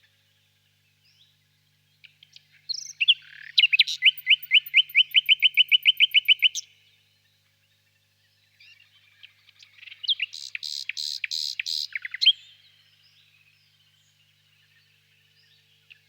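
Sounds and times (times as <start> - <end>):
nightingale singing: 2.0 - 6.8, 8.6 - 16.0.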